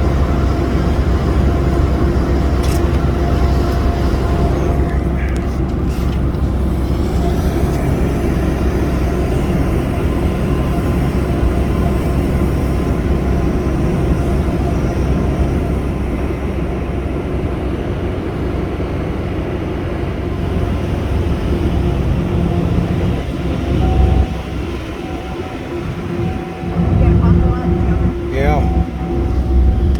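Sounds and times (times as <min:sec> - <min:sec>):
boat engine running: 0:00.0 - 0:29.9.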